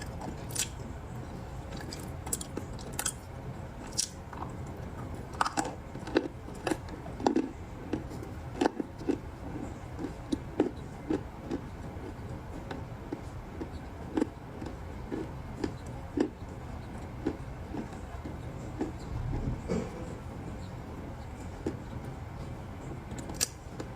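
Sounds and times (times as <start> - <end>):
ice being chewed and crunched: 1.7 - 3.2, 5.3 - 16.4.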